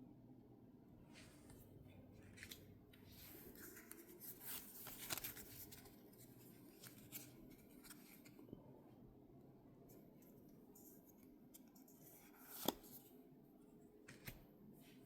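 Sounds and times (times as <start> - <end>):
trading cards rustling and clicking: 3.4 - 6.0.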